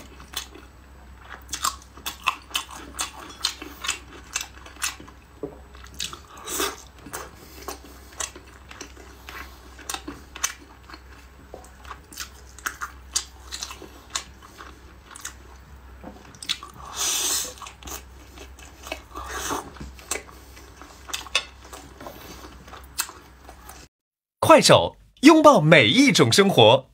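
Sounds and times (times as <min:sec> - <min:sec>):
close chewing and biting: 0:00.0 - 0:23.9.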